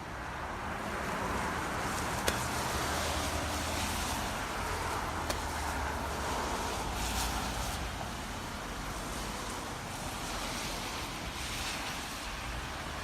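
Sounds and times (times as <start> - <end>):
broad rushing noise: 0.1 - 13.0.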